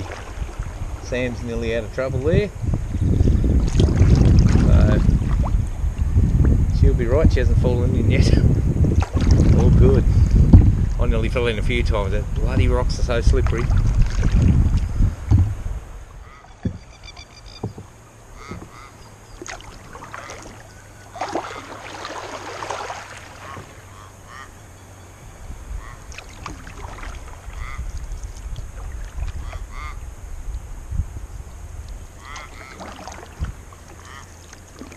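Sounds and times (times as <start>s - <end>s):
water in rocky river: 0.0s - 2.4s, 3.0s - 7.0s, 7.7s - 24.8s, 25.6s - 34.9s
water splashing: 0.0s - 24.6s, 25.4s - 34.9s
birds calling: 14.7s - 30.7s, 31.3s - 34.9s.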